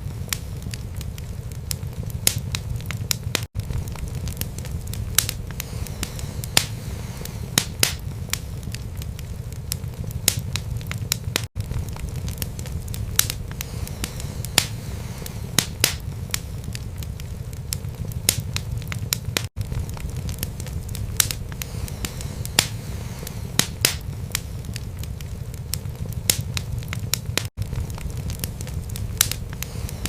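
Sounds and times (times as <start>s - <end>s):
burning logs crackling and popping: 0.0s - 30.0s
low rumble of flames: 0.0s - 30.0s.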